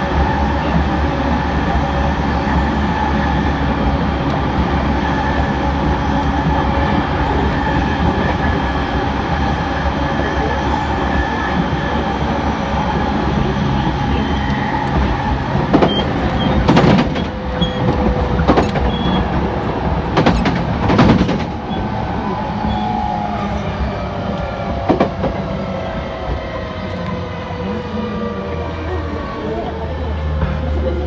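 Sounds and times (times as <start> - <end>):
electric train humming: 0.0 - 31.0
sharp knocks and clacks: 15.7 - 19.5, 20.1 - 21.6.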